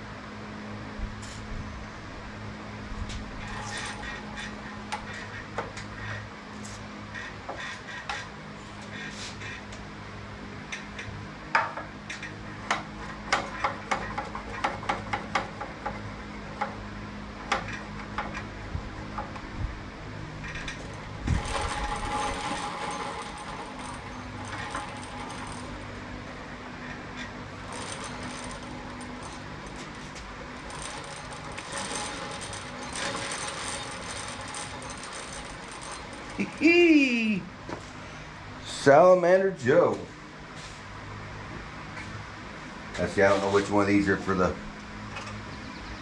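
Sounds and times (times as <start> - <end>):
rustling and scraping: 3.0 - 9.8, 20.4 - 36.7, 43.0 - 43.8
metal tools clinking: 20.4 - 26.1, 26.8 - 36.8.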